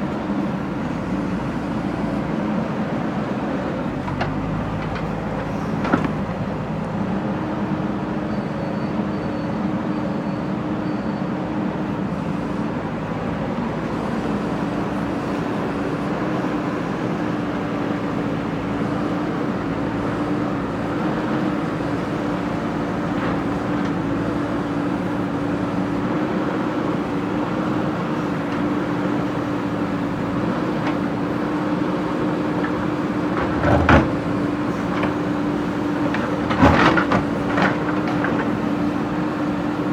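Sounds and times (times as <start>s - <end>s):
diesel engine running: 12.1s - 39.9s.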